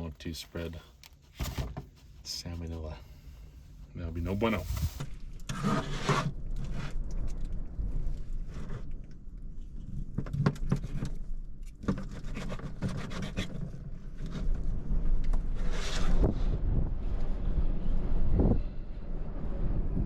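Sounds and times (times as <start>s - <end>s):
low wind rumble: 2.2s - 11.8s, 13.7s - 20.0s.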